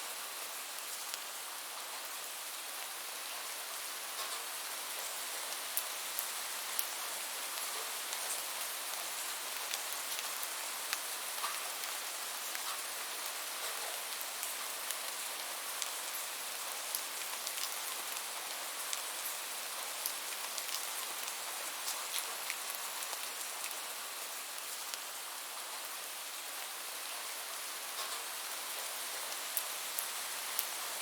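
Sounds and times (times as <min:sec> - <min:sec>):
raindrops ticking on a surface: 0:04.1 - 0:31.0.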